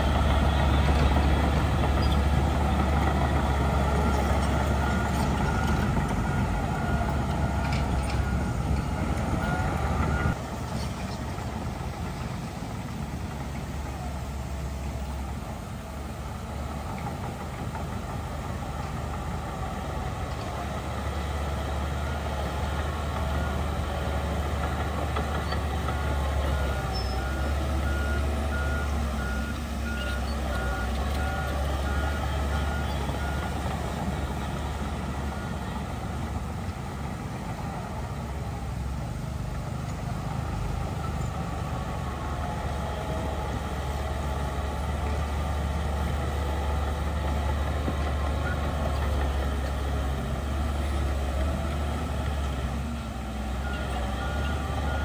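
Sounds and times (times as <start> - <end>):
diesel machinery rumbling: 0.0 - 55.0
reversing alarm beeping: 25.9 - 35.8.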